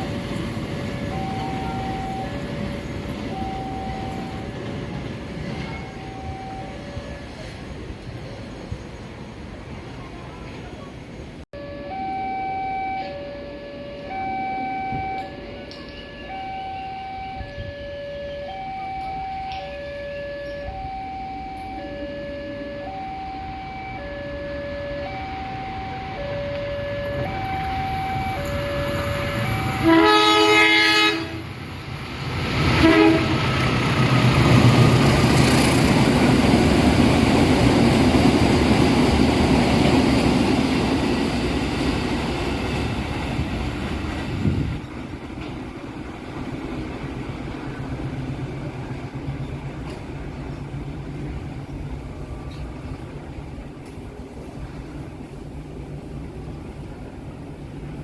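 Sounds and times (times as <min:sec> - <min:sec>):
train rumbling past: 0:00.0 - 0:58.0
train horn blast: 0:24.0 - 0:31.6, 0:32.6 - 0:33.6.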